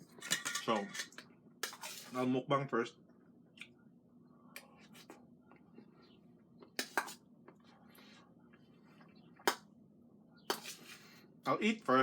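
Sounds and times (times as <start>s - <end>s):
cutlery clinking against a plate: 0.1s - 2.1s.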